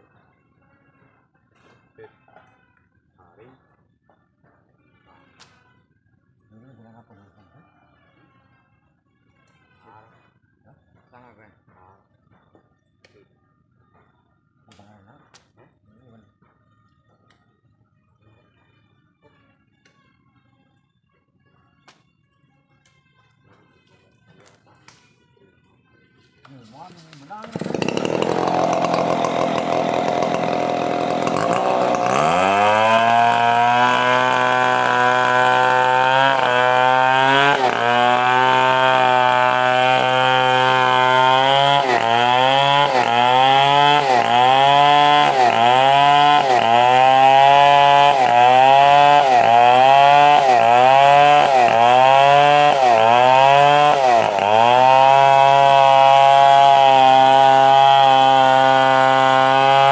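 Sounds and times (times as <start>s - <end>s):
chainsaw cutting wood: 26.8s - 59.9s.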